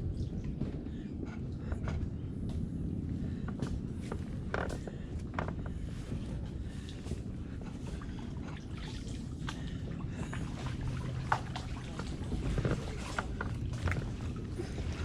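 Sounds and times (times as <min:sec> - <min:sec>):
steady low rumble: 0:00.0 - 0:15.0
paddle dipping in water: 0:04.8 - 0:15.0
water splashing and dripping: 0:07.9 - 0:15.0.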